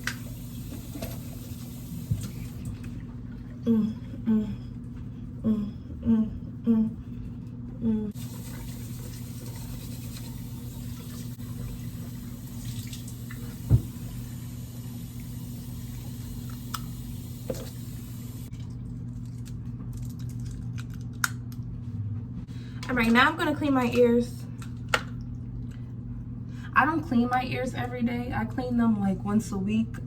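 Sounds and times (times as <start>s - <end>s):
bathroom sink tap running: 0.0s - 3.0s, 8.2s - 18.5s
steady low hum: 0.0s - 30.0s.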